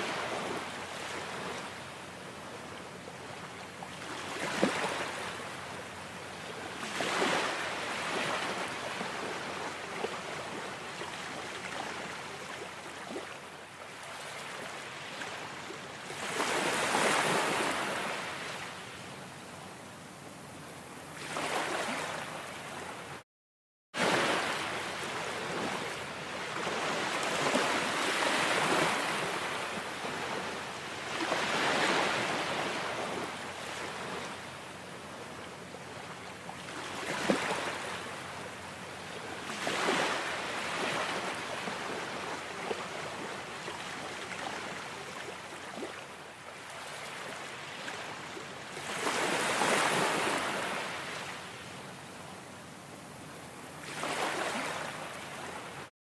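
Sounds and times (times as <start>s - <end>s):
ocean waves breaking: 6.8s - 13.4s, 16.0s - 18.7s, 21.2s - 22.4s, 24.0s - 34.4s, 39.4s - 46.0s, 48.8s - 51.4s, 53.8s - 55.8s.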